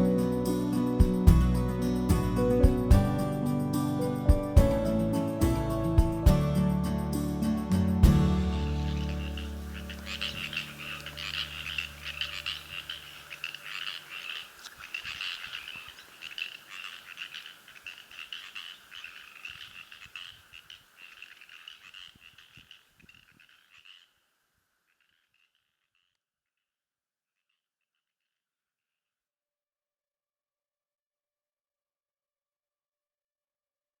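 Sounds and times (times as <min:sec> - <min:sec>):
low music notes: 0:00.0 - 0:12.2
frogs croaking in chorus: 0:08.4 - 0:26.2.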